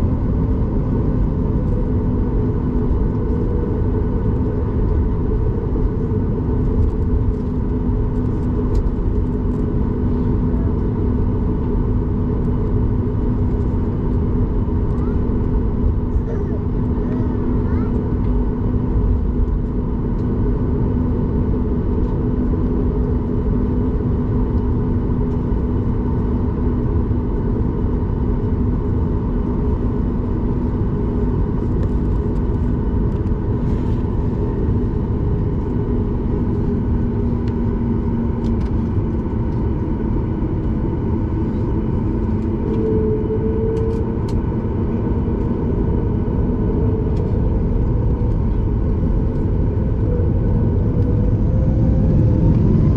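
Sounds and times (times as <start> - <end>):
aircraft cabin engine roar: 0.0 - 52.9
constant engine hum: 0.0 - 52.9
airflow over fuselage: 28.8 - 52.9.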